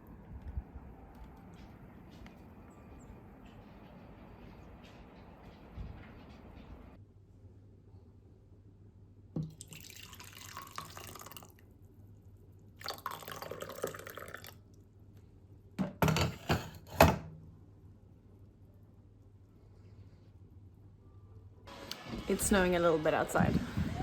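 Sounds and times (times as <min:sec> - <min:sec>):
water running: 0:09.4 - 0:11.5, 0:12.8 - 0:14.6.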